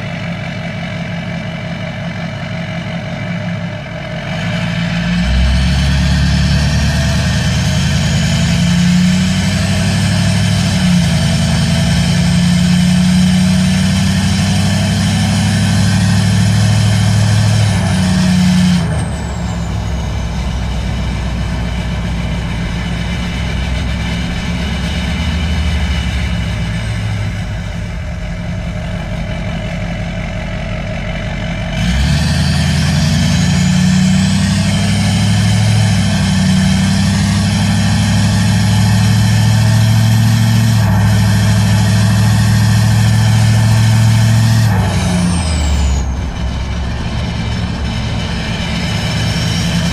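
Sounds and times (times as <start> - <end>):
diesel engine running loud: 0.0 - 49.9
turbo whine rising: 4.3 - 49.9.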